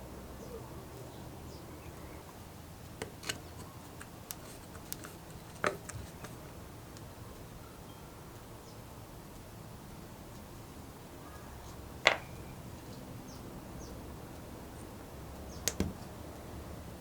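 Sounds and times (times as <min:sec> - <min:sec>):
light clicks and taps of tools: 0:03.0 - 0:07.1.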